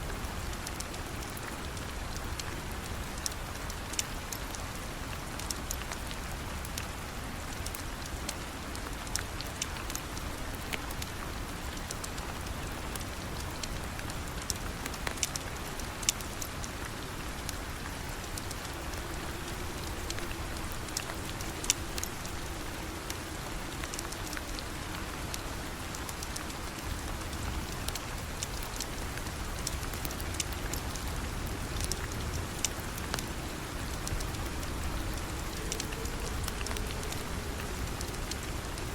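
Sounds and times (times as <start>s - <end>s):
rain falling: 0.0s - 38.9s
sharp ticks and pops: 14.4s - 16.8s, 18.2s - 38.4s.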